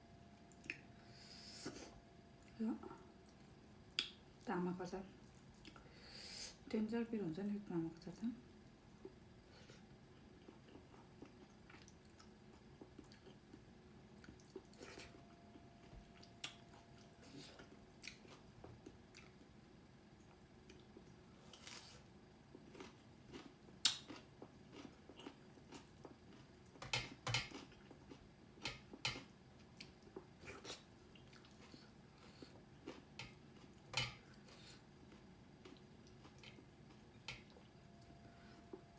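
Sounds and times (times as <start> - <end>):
person chewing: 9.0 - 19.5, 20.6 - 37.8.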